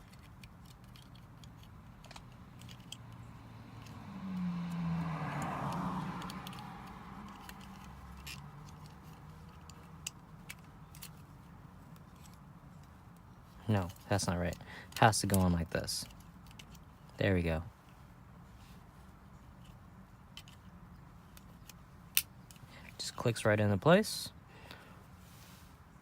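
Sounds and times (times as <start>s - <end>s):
car passing: 1.3s - 11.8s.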